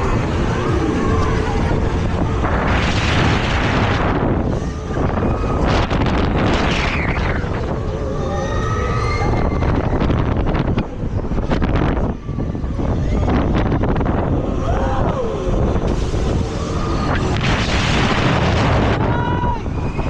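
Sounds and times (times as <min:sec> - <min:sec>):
loud rushing surges: 0:00.0 - 0:08.2, 0:09.0 - 0:20.0
fairground ride running: 0:00.0 - 0:20.0
wind buffeting microphone: 0:00.0 - 0:20.0.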